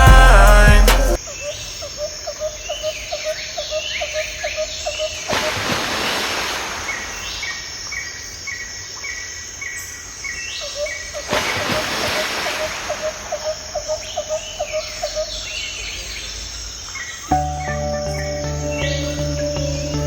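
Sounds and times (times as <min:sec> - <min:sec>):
high chirp: 0:17.3 - 0:20.0
higher chirps: 0:17.3 - 0:20.0.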